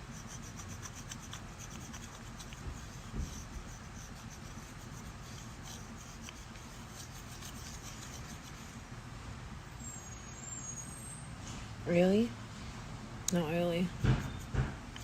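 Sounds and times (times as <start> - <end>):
stone roller rubbing over skin: 0.0 - 8.8.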